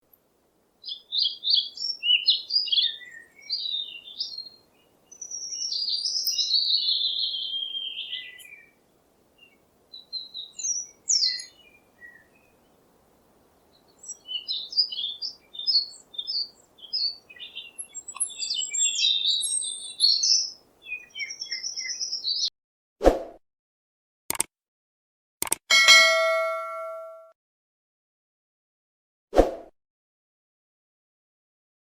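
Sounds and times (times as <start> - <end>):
birds chirping and singing: 0.8 - 8.7, 9.4 - 12.8, 13.7 - 22.5.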